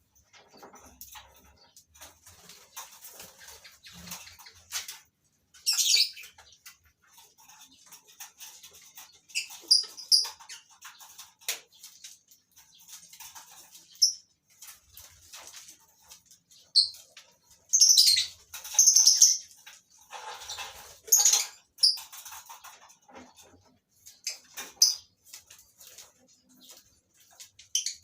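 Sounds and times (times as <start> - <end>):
light clicking and scratching: 0.0 - 28.0
birds chirping high calls: 5.5 - 6.9, 8.7 - 14.3, 16.5 - 22.8.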